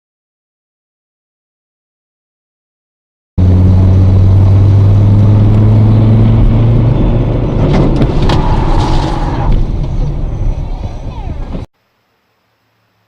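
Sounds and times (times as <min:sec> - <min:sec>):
car engine and road noise: 0:03.4 - 0:11.7.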